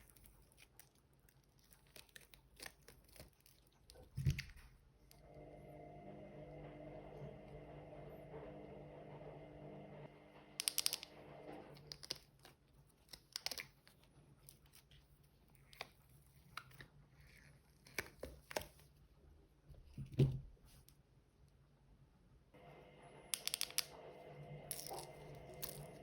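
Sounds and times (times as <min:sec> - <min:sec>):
washing machine humming: 0:05.1 - 0:11.9, 0:22.6 - 0:26.0.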